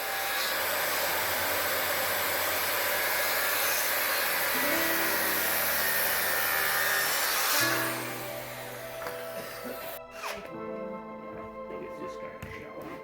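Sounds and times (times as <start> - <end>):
power tool whirring: 0.0 - 10.5
background music: 4.4 - 13.0.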